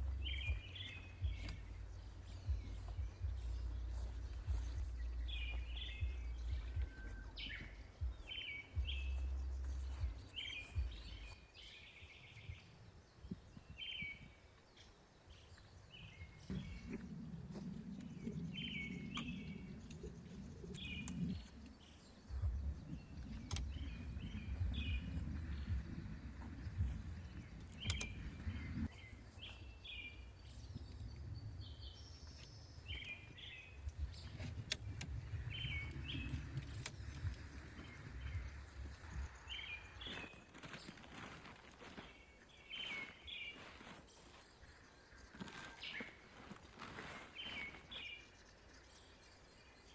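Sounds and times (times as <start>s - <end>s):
uneven low rumble: 0.0s - 11.4s, 16.1s - 40.4s
birds chirping: 0.0s - 49.9s.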